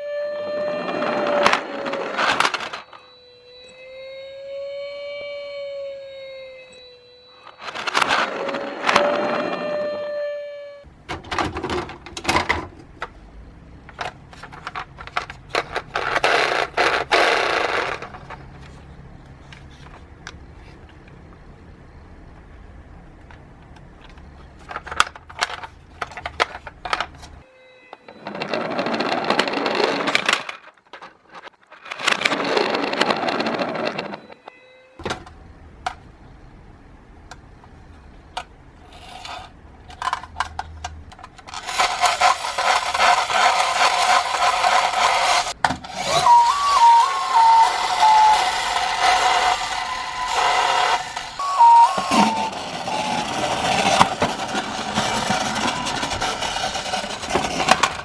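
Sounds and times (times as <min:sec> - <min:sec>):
stepping electronic tone: 0:00.0 - 0:10.8, 0:42.0 - 0:57.9
toy cars clattering on plastic track: 0:00.7 - 0:03.1, 0:07.5 - 0:09.8, 0:11.1 - 0:13.2, 0:13.8 - 0:18.8, 0:19.4 - 0:21.0, 0:23.2 - 0:27.4, 0:28.0 - 0:36.1, 0:38.3 - 0:58.0
rough rolling noise: 0:10.9 - 0:21.6, 0:28.1 - 0:34.4, 0:37.4 - 0:58.0.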